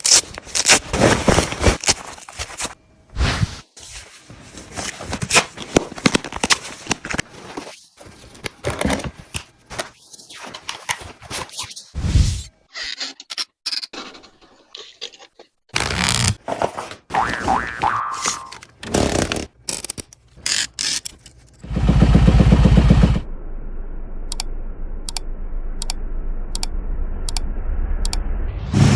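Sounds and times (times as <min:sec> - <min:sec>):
steady low hum: 0:21.6 - 0:28.9.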